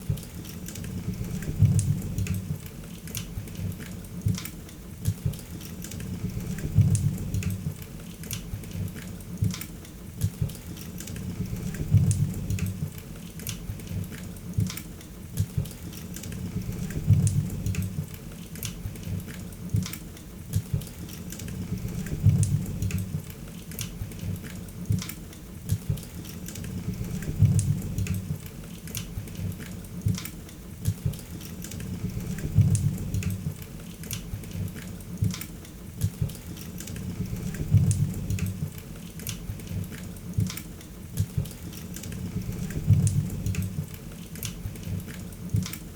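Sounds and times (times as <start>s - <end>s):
low rumble of flames: 0.8s - 2.7s, 6.0s - 7.8s, 11.2s - 13.0s, 16.3s - 18.2s, 21.5s - 23.3s, 26.6s - 28.5s, 31.8s - 33.6s, 37.0s - 38.8s, 42.1s - 44.0s.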